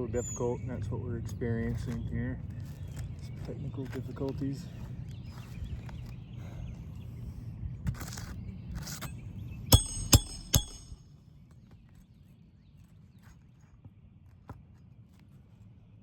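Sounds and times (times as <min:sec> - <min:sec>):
hammer strikes on metal: 0:09.7 - 0:11.0.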